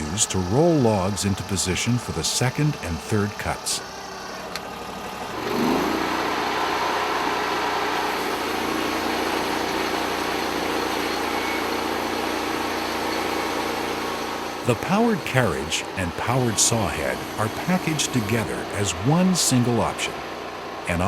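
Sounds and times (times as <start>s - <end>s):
sawmill engine revving: 0.0s - 21.0s.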